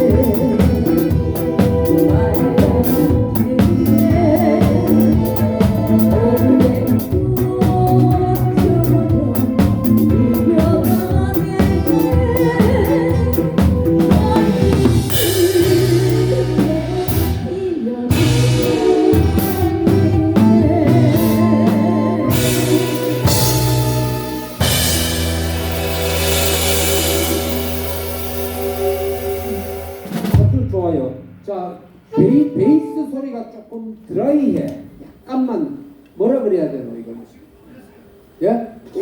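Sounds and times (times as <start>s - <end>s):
drum kit beat: 0.0s - 31.4s
live band playing: 0.0s - 33.2s
cymbal crash: 22.4s - 30.5s.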